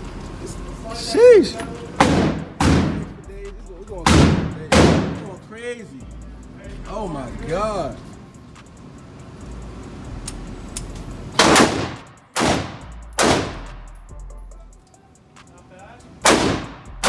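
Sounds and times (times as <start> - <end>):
loud gunshots: 2.0 - 3.2, 4.0 - 5.3, 11.4 - 13.8, 16.2 - 17.0.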